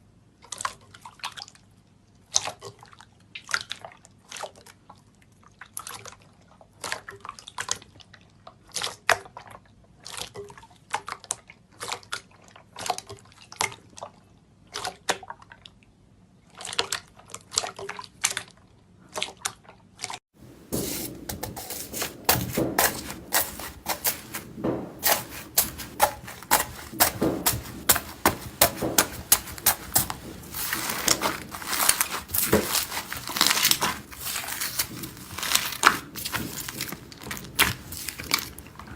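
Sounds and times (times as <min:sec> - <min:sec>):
slime squelching and popping: 0:20.6 - 0:38.9.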